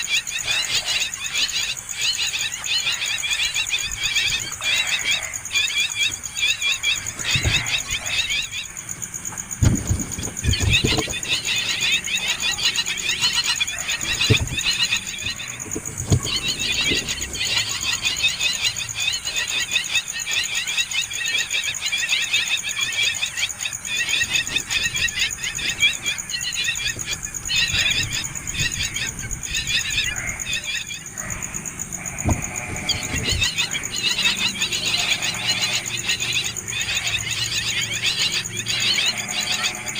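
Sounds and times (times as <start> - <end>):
nestling birds chirping: 0.0 - 39.9
dull knocks: 9.3 - 11.5, 13.9 - 18.2, 32.0 - 33.9.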